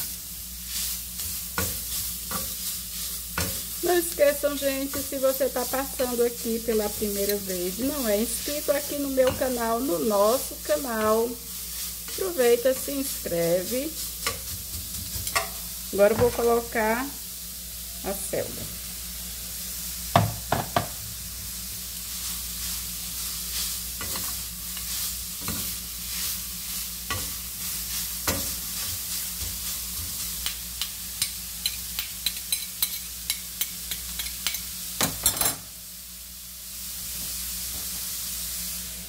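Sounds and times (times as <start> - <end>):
vegetables sizzling in frying pan: 0.0 - 39.0
metal spoons clicking against pan: 15.2 - 15.6, 30.4 - 35.6.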